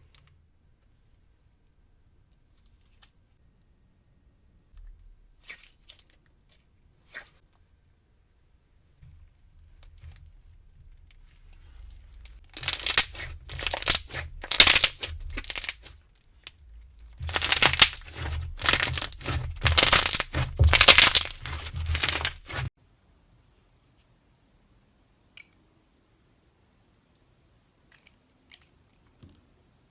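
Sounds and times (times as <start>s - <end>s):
close crunching and crackling: 11.0s - 22.7s.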